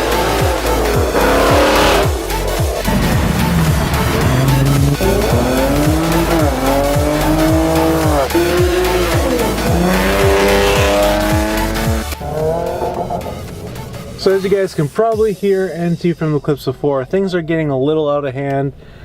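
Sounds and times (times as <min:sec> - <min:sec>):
car engine revving: 0:00.0 - 0:15.1
music with pounding bass beat: 0:00.0 - 0:16.5.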